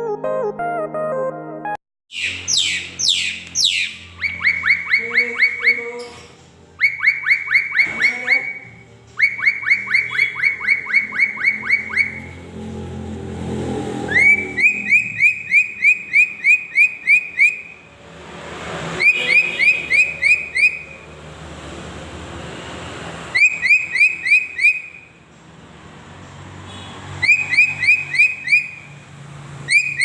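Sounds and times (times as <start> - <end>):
bird whistling calls: 2.1 - 6.2, 6.8 - 12.4, 14.1 - 17.8, 19.0 - 21.0, 23.4 - 25.1, 27.2 - 28.9, 29.7 - 30.0.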